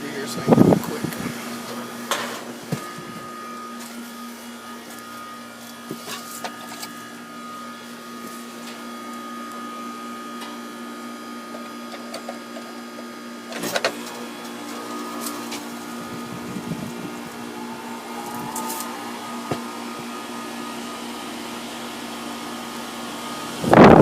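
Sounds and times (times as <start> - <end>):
air conditioner humming: 0.0 - 24.0.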